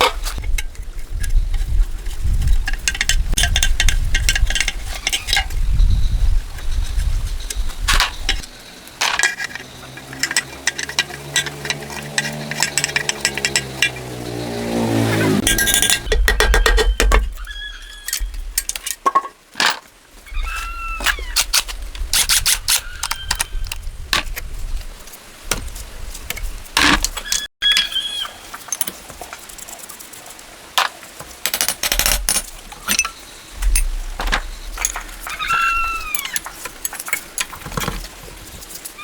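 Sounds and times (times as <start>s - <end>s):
metal tools clinking: 9.0s - 14.1s, 15.4s - 16.3s, 31.4s - 38.0s.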